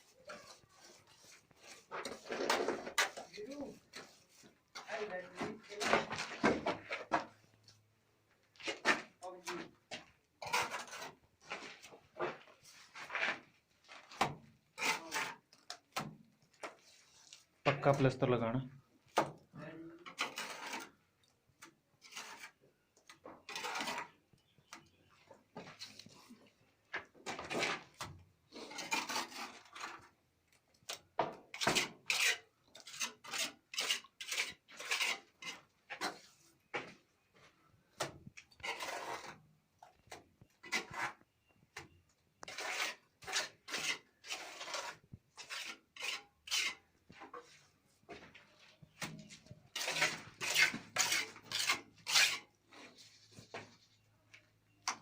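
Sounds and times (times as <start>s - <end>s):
trowel scraping plaster: 0.0s - 7.8s, 8.6s - 18.2s, 19.1s - 25.0s, 25.6s - 36.7s, 38.0s - 54.0s.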